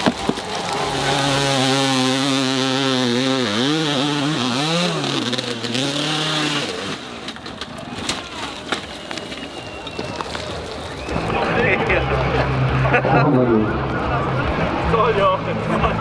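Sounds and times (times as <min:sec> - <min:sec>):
dirt bike engine revving: 0:00.0 - 0:07.4.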